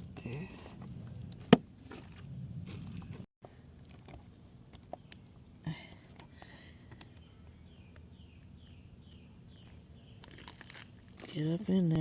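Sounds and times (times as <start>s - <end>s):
bird chirping: 7.0s - 10.5s.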